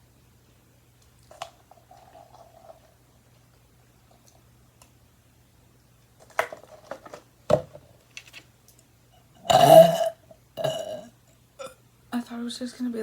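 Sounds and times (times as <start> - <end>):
person burping: 9.4 - 11.8.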